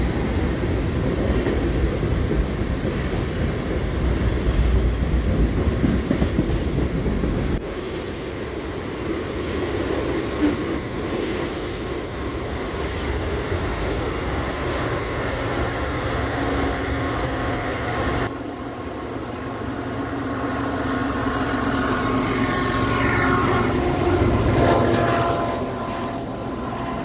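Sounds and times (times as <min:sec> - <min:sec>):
train passing rumble: 0:00.0 - 0:27.0
droning steady tones: 0:18.2 - 0:27.0.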